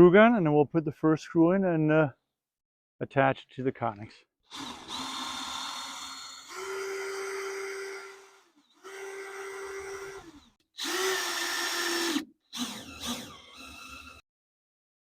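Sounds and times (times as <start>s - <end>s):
screw gun driving screw: 4.5s - 14.2s.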